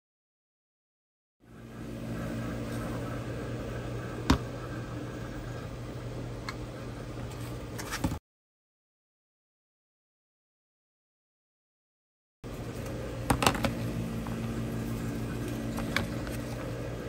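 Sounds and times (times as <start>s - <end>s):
low room hum: 1.4s - 8.2s, 12.4s - 17.0s.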